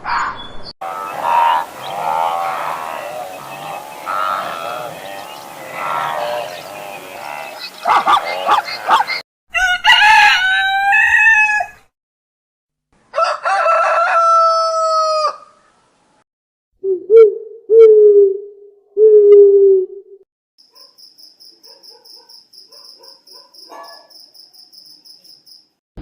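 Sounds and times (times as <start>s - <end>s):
low hooting calls: 0.8s - 9.2s
rooster crowing: 0.8s - 11.8s, 13.1s - 15.5s.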